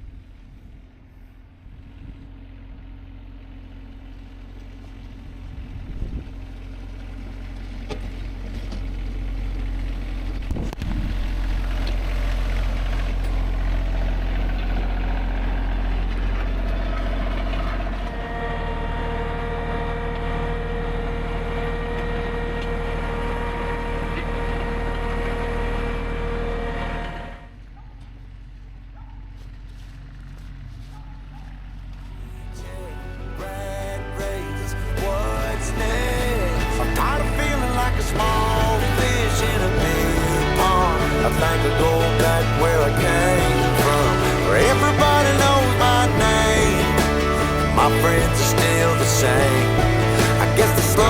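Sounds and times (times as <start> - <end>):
tractor engine running: 0.0 - 51.0
steady whine: 7.8 - 27.7, 31.6 - 51.0.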